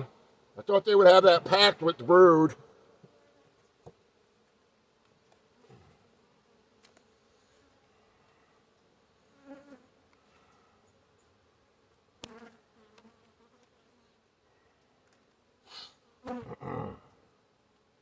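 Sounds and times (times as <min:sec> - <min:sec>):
bees passing close by: 0:05.4 - 0:14.3.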